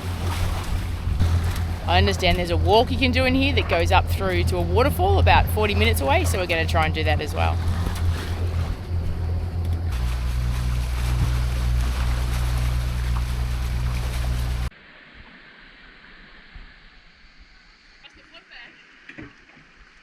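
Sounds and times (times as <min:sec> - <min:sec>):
boat engine droning: 0:00.0 - 0:14.7
wind and water hiss: 0:00.0 - 0:20.0.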